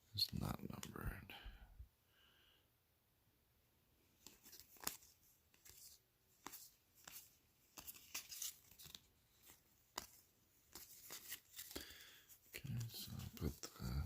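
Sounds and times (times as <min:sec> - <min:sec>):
trading cards and wrapper rustling: 0:04.2 - 0:14.0.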